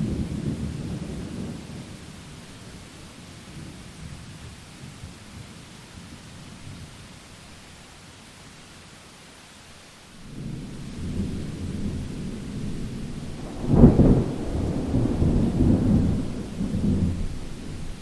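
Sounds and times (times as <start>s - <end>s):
rain hissing: 0.0s - 18.0s
thunder rumbling: 10.2s - 18.0s.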